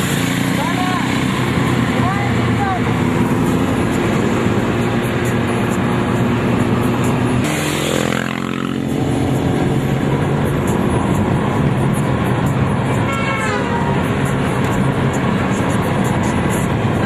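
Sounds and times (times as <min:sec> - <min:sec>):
street traffic: 0:00.0 - 0:17.0
vehicle engines running: 0:00.0 - 0:17.0.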